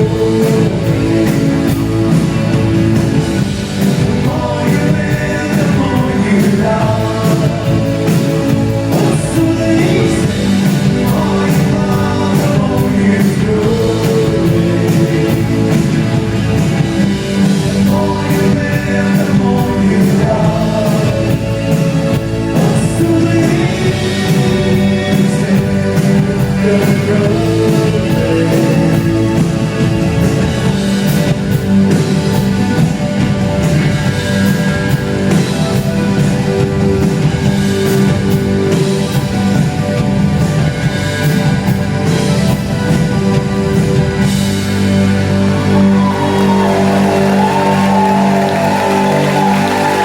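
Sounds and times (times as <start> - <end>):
person singing: 0.0 - 3.2, 3.8 - 16.4, 17.1 - 29.9
bass guitar: 0.0 - 50.0
drums: 0.0 - 50.0
electric guitar: 0.0 - 50.0.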